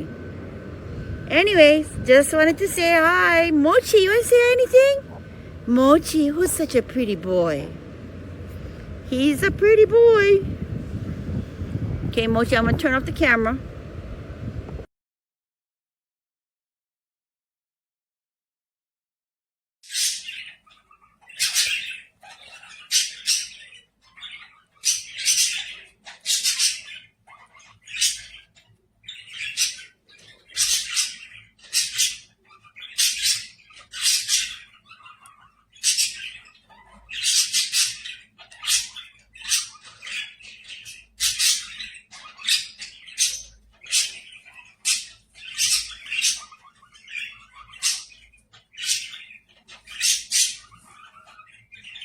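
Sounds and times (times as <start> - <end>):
parrot squawking: 1.6 - 10.5, 19.9 - 52.0.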